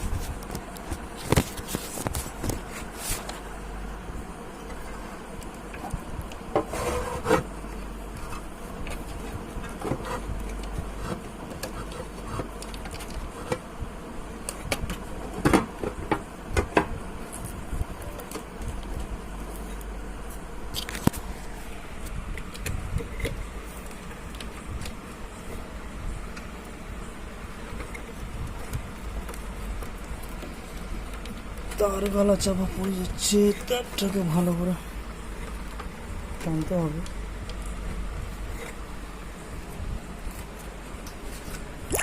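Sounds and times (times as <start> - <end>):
speaker crackles and clicks: 0.0 - 13.7, 14.4 - 42.0
speaker buzzing hum: 0.0 - 42.0.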